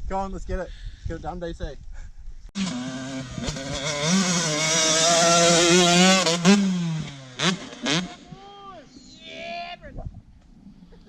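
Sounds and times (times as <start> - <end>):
dirt bike engine revving: 2.6 - 8.4.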